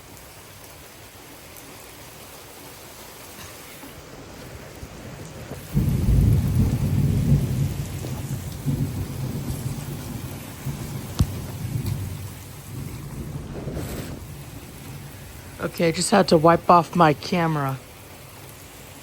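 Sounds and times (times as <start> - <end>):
heavy rain pouring: 0.0 - 19.0
deep thunder rumble: 5.5 - 18.0.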